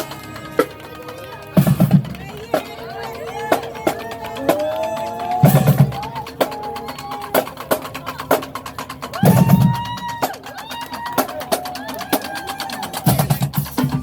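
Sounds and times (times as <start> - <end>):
horns holding long notes: 0.0 - 7.8
rapid drum strikes: 0.0 - 14.0.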